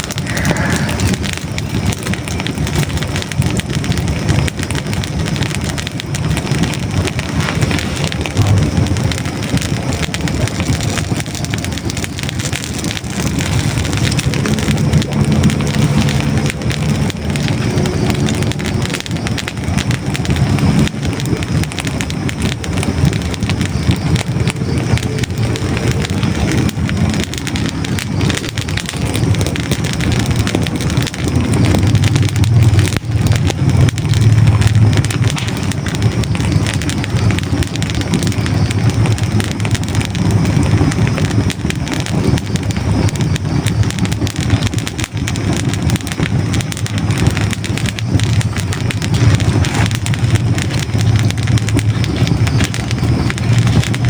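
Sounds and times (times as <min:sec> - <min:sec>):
logs crackling in fireplace: 0:00.0 - 0:54.0.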